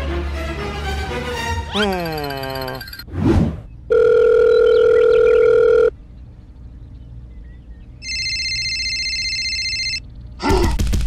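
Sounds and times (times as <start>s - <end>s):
telephone ringing: 3.9s - 5.9s, 8.0s - 10.0s
higher-pitched ring tone: 8.0s - 10.0s.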